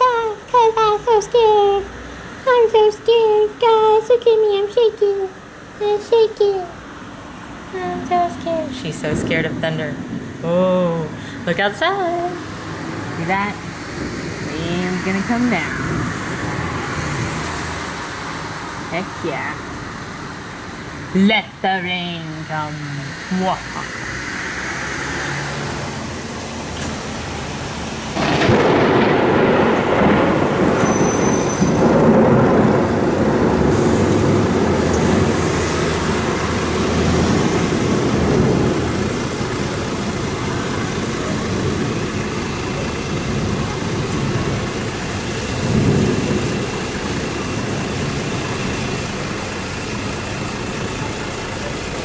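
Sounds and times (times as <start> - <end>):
steady rain: 0.0 - 52.0
thunder rumbling: 7.7 - 21.2, 25.2 - 52.0.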